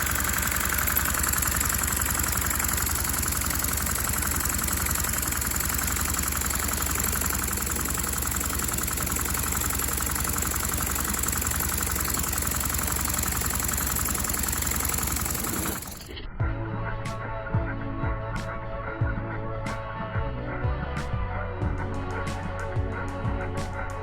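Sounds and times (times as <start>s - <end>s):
plastic engine clattering: 0.0s - 16.2s
music: 16.2s - 24.0s.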